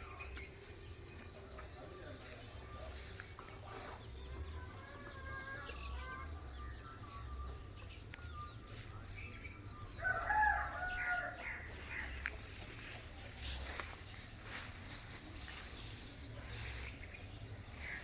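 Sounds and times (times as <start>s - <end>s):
rooster crowing: 10.0s - 11.7s.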